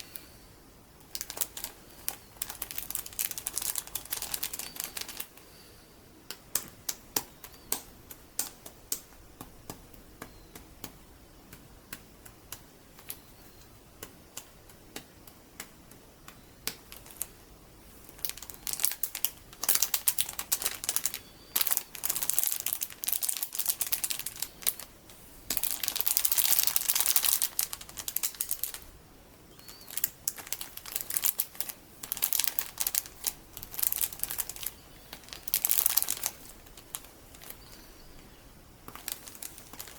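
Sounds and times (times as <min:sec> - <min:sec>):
scratching and crinkling: 0:01.0 - 0:05.4, 0:16.3 - 0:28.9, 0:29.5 - 0:39.9.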